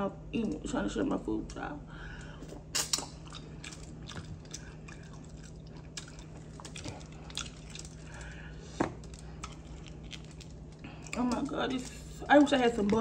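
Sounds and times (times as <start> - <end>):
wet chewing mouth sounds: 3.0 - 12.3.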